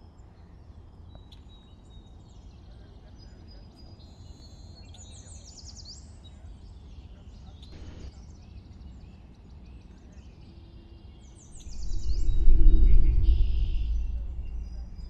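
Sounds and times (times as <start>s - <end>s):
bird trill of down-sweeping notes: 11.4s - 15.0s
birds chirping and whistling: 11.4s - 15.0s
low outdoor rumble: 11.4s - 15.0s.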